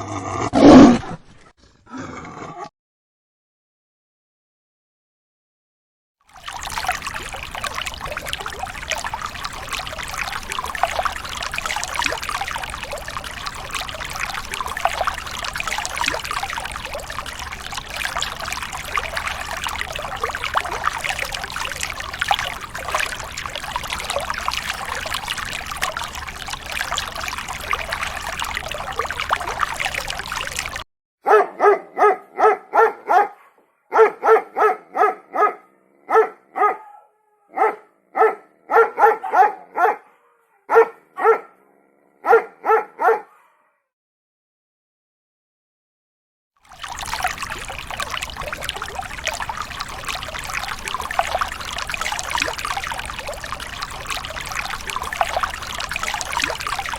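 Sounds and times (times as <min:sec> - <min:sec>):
water rushing and trickling: 0:06.3 - 0:30.8, 0:46.6 - 0:56.9
dog barking: 0:31.2 - 0:43.8.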